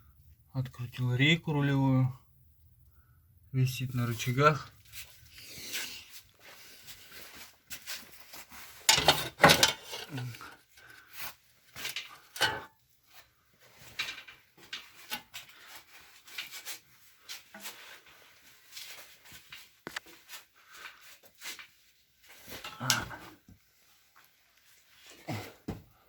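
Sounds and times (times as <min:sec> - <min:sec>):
metal tools clinking and knocking: 0:08.9 - 0:10.5, 0:11.8 - 0:12.7.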